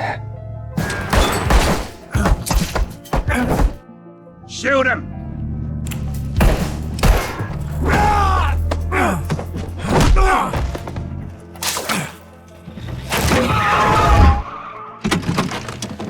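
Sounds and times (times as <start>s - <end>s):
dramatic score music: 0.0s - 16.0s
heavy thumps and impacts: 0.8s - 3.8s.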